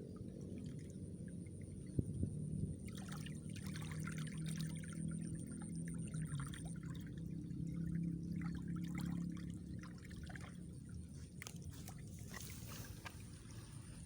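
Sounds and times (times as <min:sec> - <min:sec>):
water pouring and trickling: 0:06.3 - 0:14.0.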